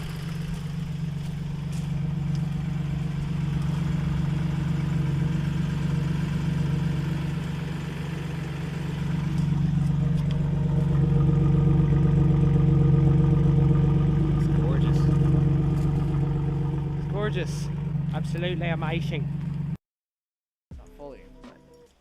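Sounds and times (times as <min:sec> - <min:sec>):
engine exhaust drone: 0:00.0 - 0:19.8.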